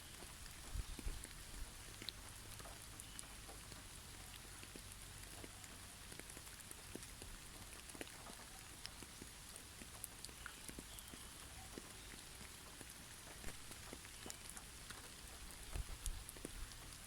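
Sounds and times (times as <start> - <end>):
snowfall pattering on trees: 0.0 - 17.0.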